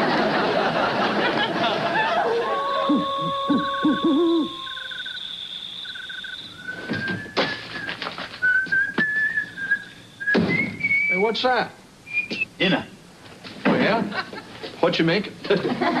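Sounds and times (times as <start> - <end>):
steady high tone: 2.0 - 7.7
owl hooting: 2.0 - 8.0
short pulsed chirps: 2.6 - 7.7
person whistling a tune: 2.8 - 11.2, 12.1 - 12.5.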